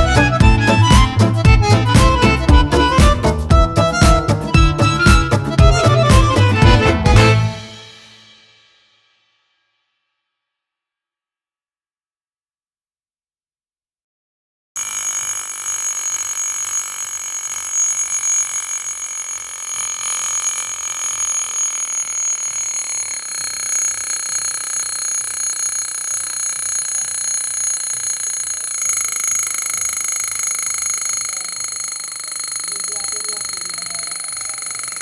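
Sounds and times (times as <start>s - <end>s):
electric bell ringing on steel bowl: 14.8s - 35.0s.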